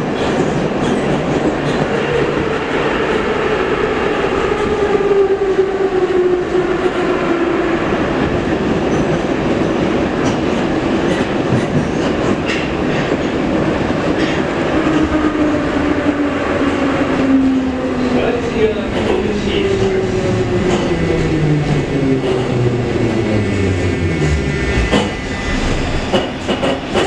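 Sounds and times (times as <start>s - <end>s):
rumble of train wheels on rail: 0.0s - 27.0s.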